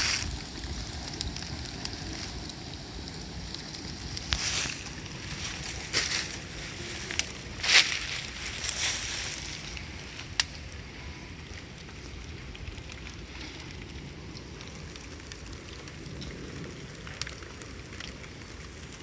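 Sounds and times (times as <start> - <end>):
bonfire rumbling: 0.0 - 19.0
fire crackles and pops: 0.0 - 19.0
crunching snap: 3.5 - 10.8.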